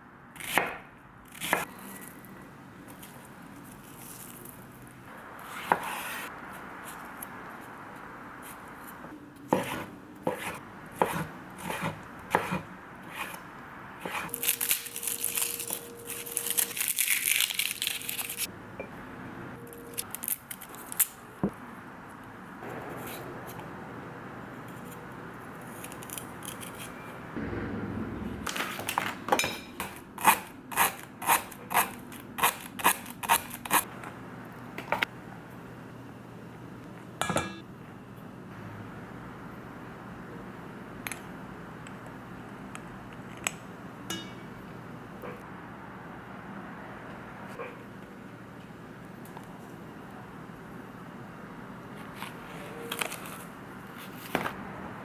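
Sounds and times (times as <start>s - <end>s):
knife chopping on cutting board: 9.5s - 13.4s.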